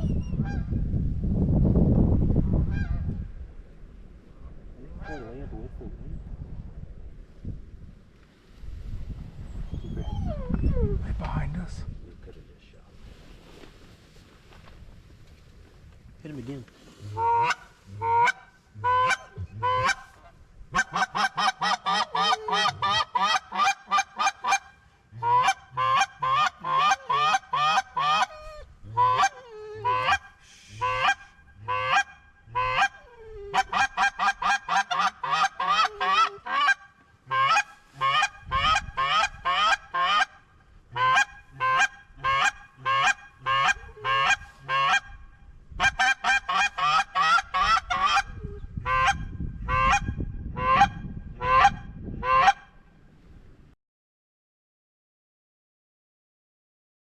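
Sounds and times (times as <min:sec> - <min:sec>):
goose calls honking and clucking: 0:17.0 - 0:45.2, 0:45.8 - 0:52.7.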